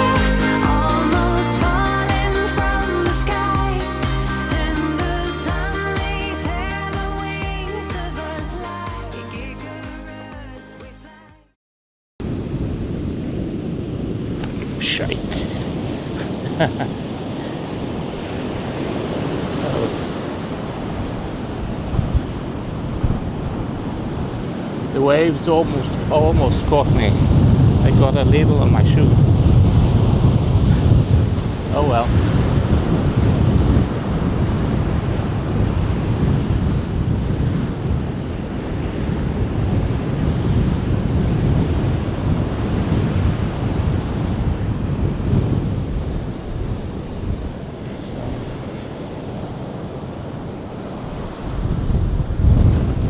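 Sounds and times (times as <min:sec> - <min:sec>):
ocean surf on beach: 0:00.0 - 0:10.8, 0:12.2 - 0:53.0
wind buffeting microphone: 0:12.2 - 0:53.0.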